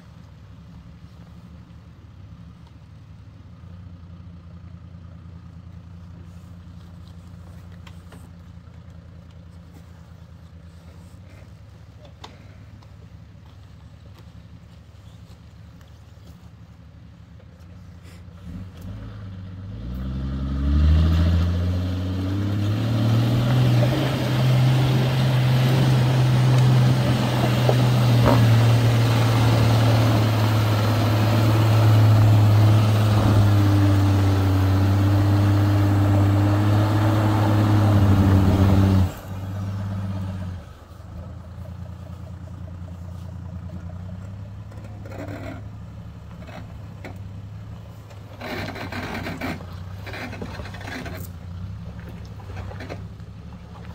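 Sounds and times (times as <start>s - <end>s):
vehicle engine revving: 18.3s - 53.9s.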